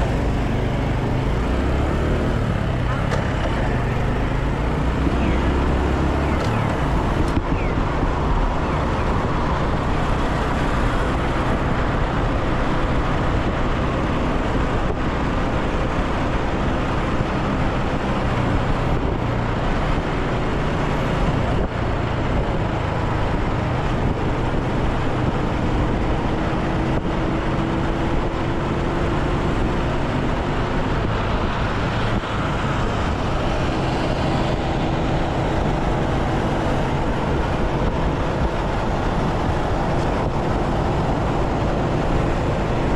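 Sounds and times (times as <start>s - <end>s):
motorcycle engine running: 0.0s - 18.5s
road and traffic noise: 0.0s - 42.9s.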